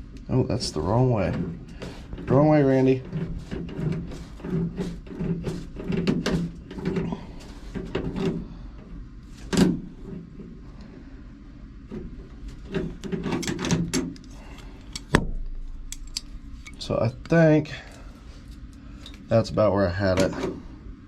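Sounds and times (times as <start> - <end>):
low steady hum: 0.0 - 21.0
metal clicks and rattles: 12.6 - 17.4.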